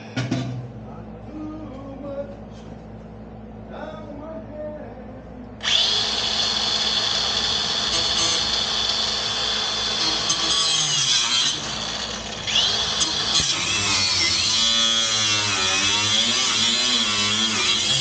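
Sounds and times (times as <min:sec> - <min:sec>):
power cutter cutting metal: 0:05.6 - 0:18.0.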